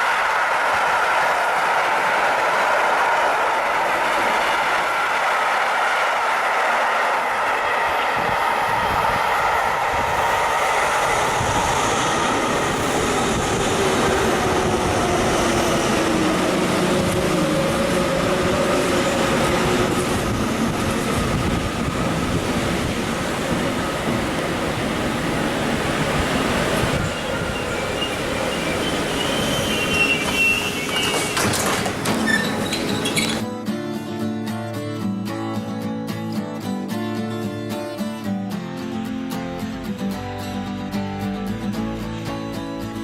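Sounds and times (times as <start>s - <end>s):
train wheels rushing on rail: 0.0s - 33.4s.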